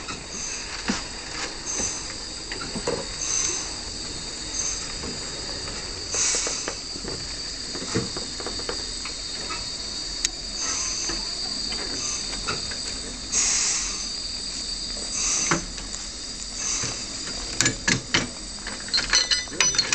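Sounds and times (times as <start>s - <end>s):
steam puffs: 0.0s - 18.6s
steam locomotive hissing: 0.0s - 19.9s.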